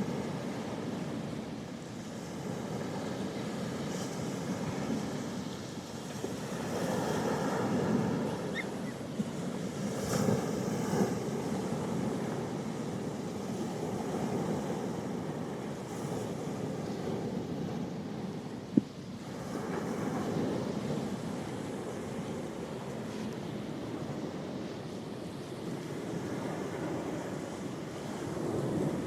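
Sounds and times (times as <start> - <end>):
sea waves washing onto shore: 0.0 - 29.0.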